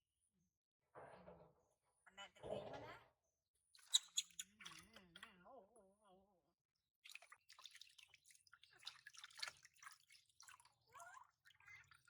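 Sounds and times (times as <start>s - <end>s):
water dripping and splashing: 7.0s - 10.9s.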